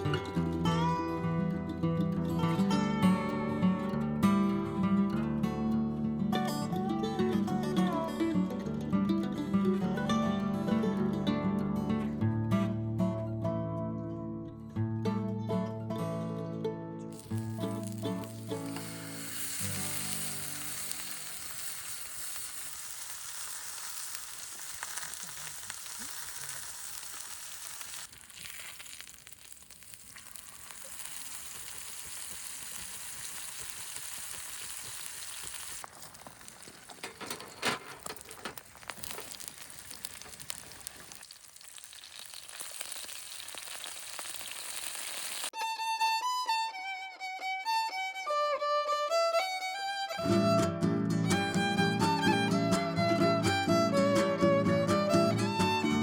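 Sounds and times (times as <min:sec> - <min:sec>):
food sizzling in a pan: 0:17.1 - 0:37.3, 0:38.0 - 0:45.6
crackles and pops: 0:17.2 - 0:45.5.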